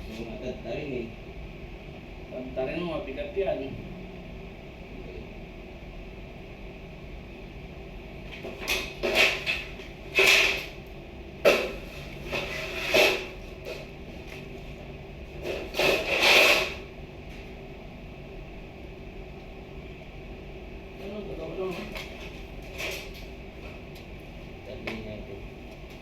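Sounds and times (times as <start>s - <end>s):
steady background hum: 0.0s - 26.0s
heavy items scraping and knocking: 8.4s - 10.8s, 11.5s - 13.9s.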